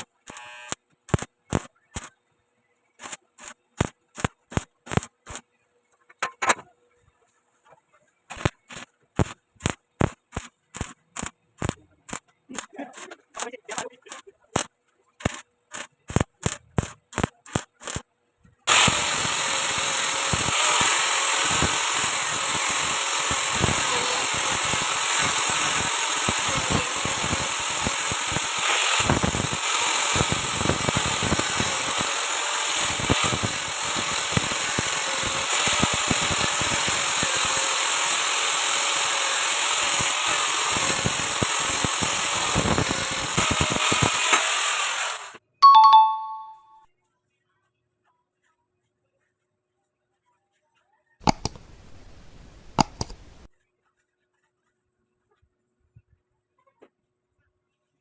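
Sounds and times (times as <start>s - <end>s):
welding arc crackling and hissing: 0.0s - 2.1s, 3.0s - 5.4s, 8.3s - 18.0s, 18.7s - 45.4s
sharp clicks: 0.0s - 2.2s, 8.3s - 18.0s, 51.2s - 51.8s, 52.7s - 53.5s.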